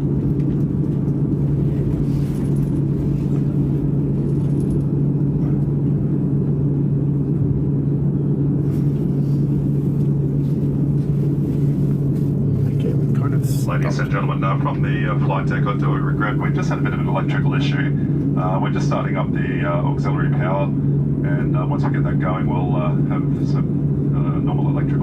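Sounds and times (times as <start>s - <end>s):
airliner cabin rumble and hum: 0.0s - 25.0s.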